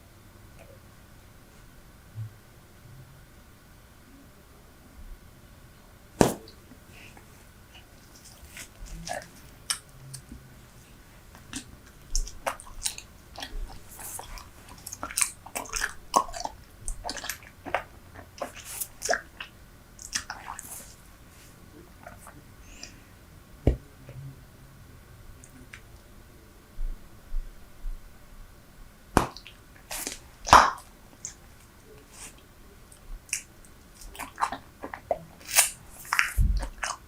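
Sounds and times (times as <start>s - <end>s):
gum chewing clicks and smacks: 8.0s - 10.4s, 11.3s - 21.0s, 29.2s - 37.0s.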